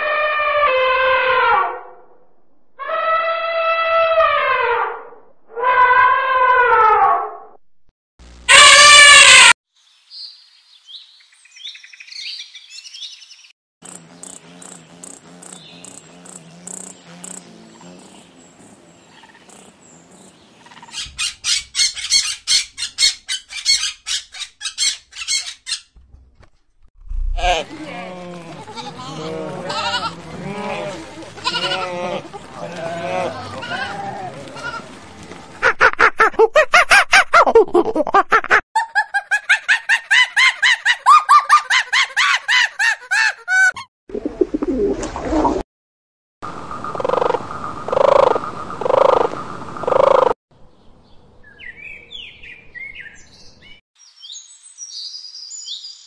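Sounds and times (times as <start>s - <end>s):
budgerigar chirping: 20.6s - 25.9s
animal calls repeated: 27.1s - 27.8s.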